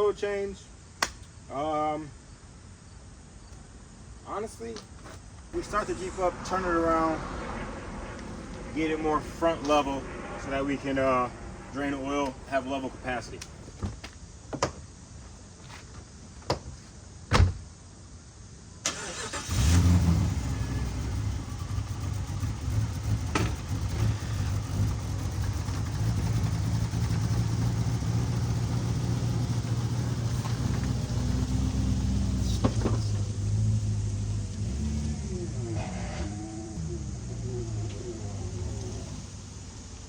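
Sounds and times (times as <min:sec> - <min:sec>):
car engine starting and running: 0:05.5 - 0:13.8, 0:18.8 - 0:40.0.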